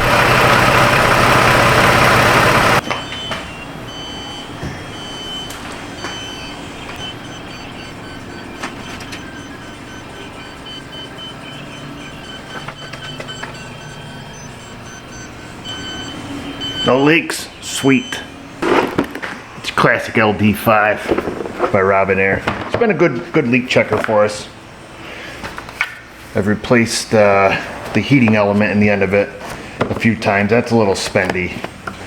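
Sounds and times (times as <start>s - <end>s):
van engine running: 0.0s - 19.6s
leak detector beeping: 0.0s - 21.2s.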